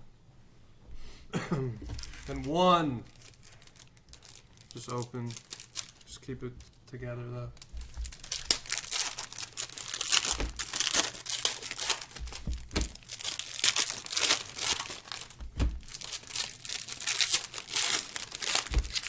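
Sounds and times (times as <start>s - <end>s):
plastic wrap crinkling and tearing: 1.8s - 19.0s
boxes knocking: 7.8s - 16.1s.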